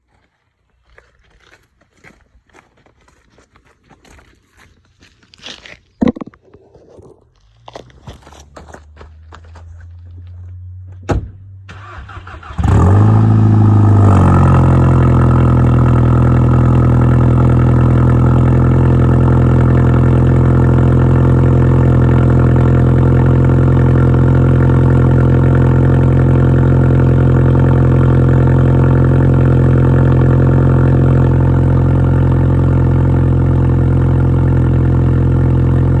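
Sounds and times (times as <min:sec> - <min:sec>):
car engine cranking and idling: 0:07.4 - 0:36.0.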